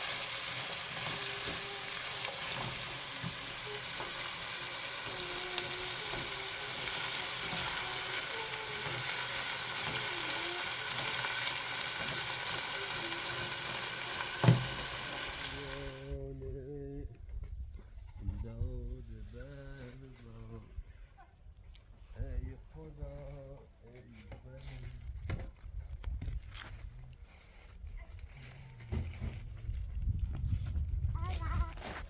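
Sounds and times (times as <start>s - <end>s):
food sizzling in hot oil: 0.0s - 16.1s.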